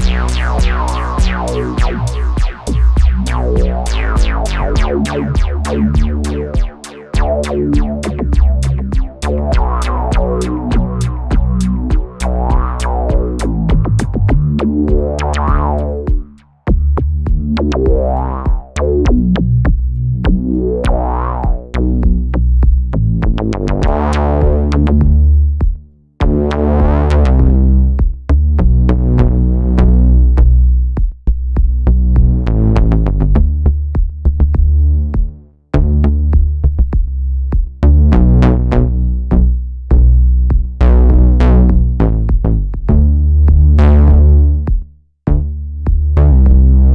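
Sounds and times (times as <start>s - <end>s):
gritty filtered synth line: 0.0s - 19.6s, 20.3s - 22.2s
drum machine beat: 0.0s - 46.9s.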